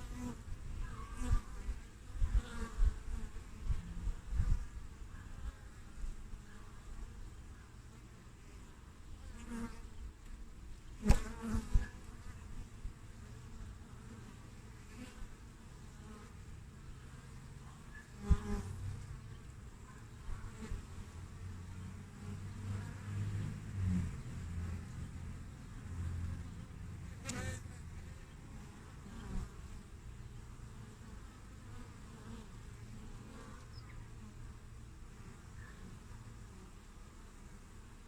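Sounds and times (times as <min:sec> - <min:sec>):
honeybees buzzing: 0:10.9 - 0:38.0.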